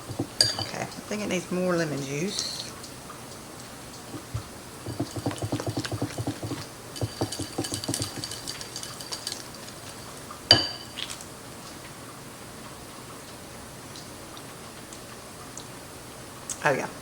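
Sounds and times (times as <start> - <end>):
utensil clinking against bowl: 0.0 - 0.9, 4.1 - 11.1.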